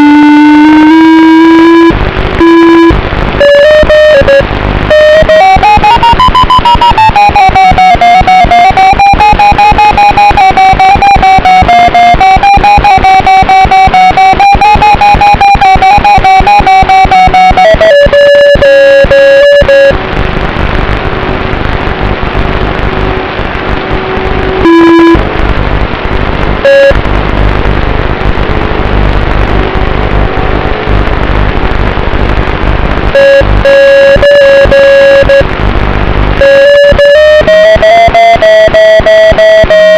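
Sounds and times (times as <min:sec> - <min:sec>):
loud wind noise: 0:19.9 - 0:33.2.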